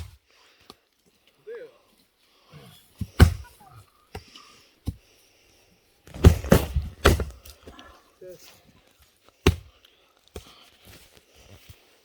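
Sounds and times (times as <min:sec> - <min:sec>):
firewood being split: 0:03.0 - 0:03.5, 0:06.0 - 0:08.0, 0:09.2 - 0:10.6.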